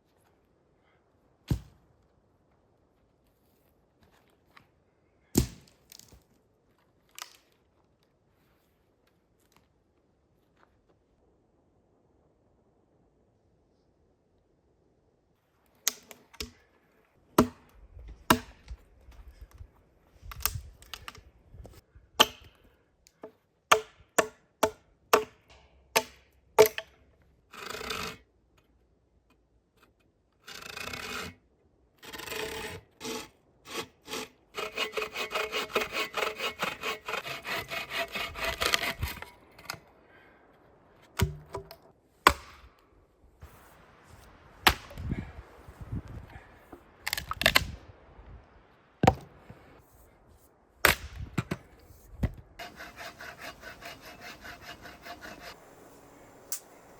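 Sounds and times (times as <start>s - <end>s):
hand saw sawing wood: 27.5s - 28.2s, 30.5s - 31.4s, 32.0s - 39.4s, 52.6s - 56.6s.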